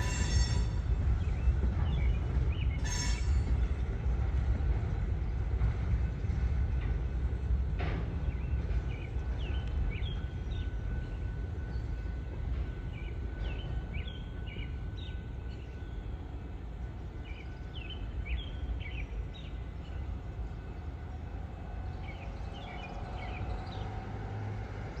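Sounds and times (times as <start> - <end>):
freight train rumble: 0.0 - 25.0
birds chirping: 8.2 - 24.0.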